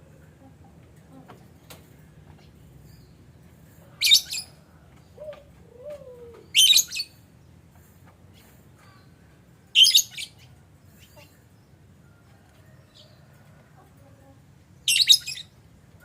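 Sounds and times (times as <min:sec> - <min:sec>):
lovebirds chirping shrilly: 0:06.5 - 0:07.2, 0:09.8 - 0:11.2, 0:14.8 - 0:15.5.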